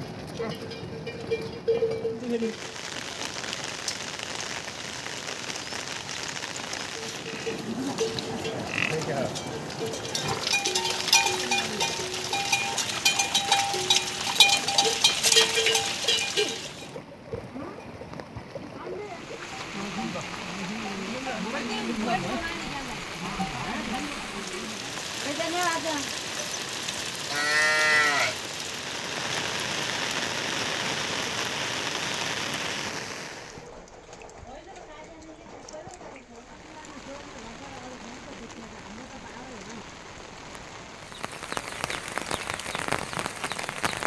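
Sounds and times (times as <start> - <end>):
steady rainfall: 0.0 - 44.0
livestock bells clanking: 0.3 - 2.6, 7.0 - 17.0, 23.3 - 28.8
sheep bleating: 7.0 - 16.6, 27.3 - 28.4.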